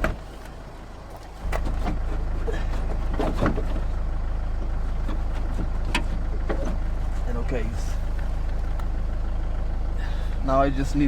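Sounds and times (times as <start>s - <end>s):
clicks and knocks of car door parts: 0.0s - 4.0s, 5.0s - 6.9s.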